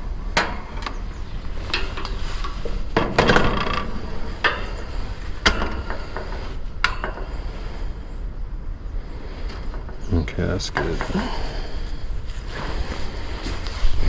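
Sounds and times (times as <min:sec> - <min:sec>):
steady low hum: 0:00.0 - 0:14.0
hand tools clattering: 0:09.6 - 0:11.6.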